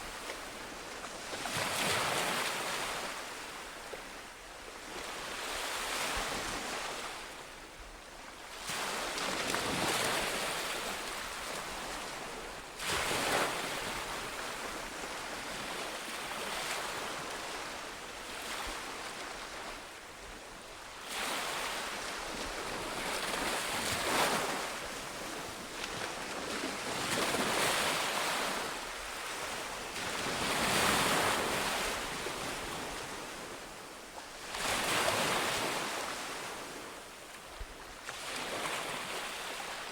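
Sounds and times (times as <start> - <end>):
ocean waves breaking on beach: 21.0 - 37.1.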